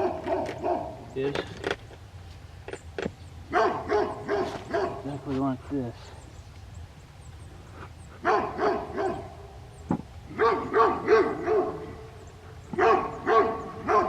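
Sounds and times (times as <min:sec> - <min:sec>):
dog barking: 0:00.0 - 0:01.0, 0:03.5 - 0:05.2, 0:08.2 - 0:09.4, 0:10.3 - 0:12.1, 0:12.7 - 0:14.0.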